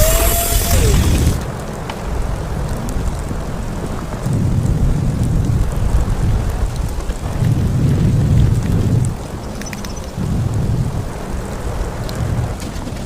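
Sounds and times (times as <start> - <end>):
storm wind gusting: 0.0 - 9.4
faint ticks: 9.5 - 10.2.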